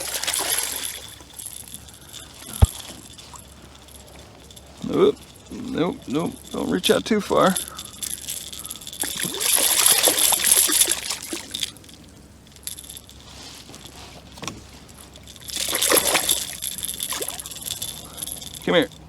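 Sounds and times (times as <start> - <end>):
fish thrashing at surface: 0.0 - 4.2, 7.6 - 11.7, 15.5 - 18.6.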